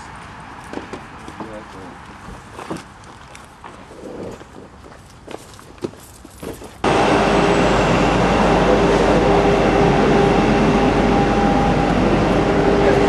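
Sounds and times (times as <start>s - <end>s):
loud steady mechanical noise: 6.8s - 13.0s.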